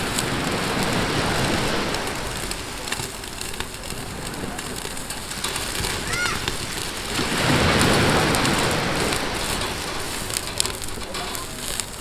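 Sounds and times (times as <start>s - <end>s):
wood fire crackling: 0.0s - 12.0s
meat sizzling on a grill plate: 6.0s - 10.4s.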